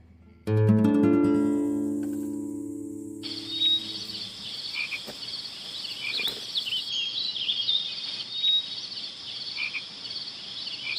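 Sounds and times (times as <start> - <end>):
frogs croaking and chirping: 3.2 - 10.9.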